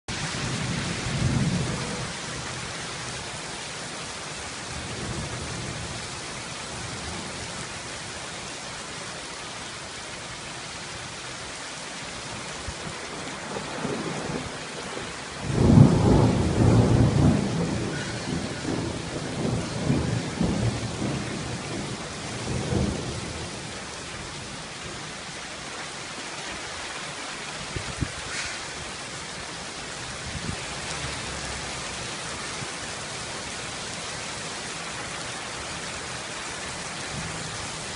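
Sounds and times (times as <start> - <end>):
thunder rumbling: 0.1 - 2.5, 12.7 - 24.6
heavy rain falling: 0.1 - 37.9.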